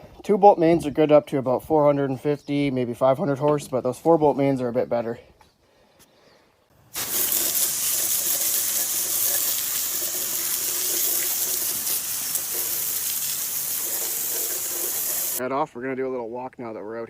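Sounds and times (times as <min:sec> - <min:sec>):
rushing water: 0:07.0 - 0:15.4.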